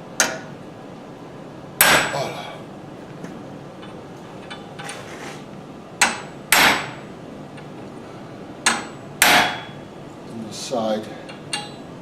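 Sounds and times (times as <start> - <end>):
hammer tapping a chisel on steel: 8.6 - 9.8, 11.3 - 11.8.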